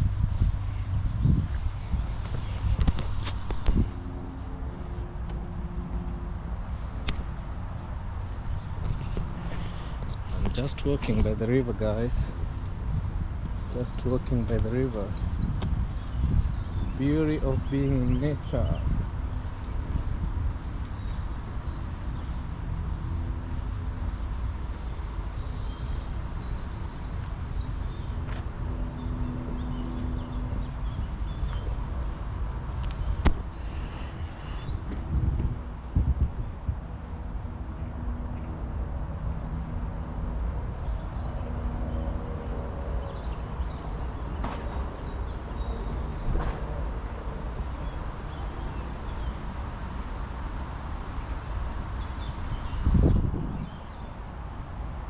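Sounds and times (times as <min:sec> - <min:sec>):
steady low rumble: 0:00.0 - 0:24.0
small birds chirping: 0:00.4 - 0:04.0, 0:06.6 - 0:19.8, 0:20.4 - 0:35.8, 0:40.7 - 0:49.9, 0:51.1 - 0:54.6.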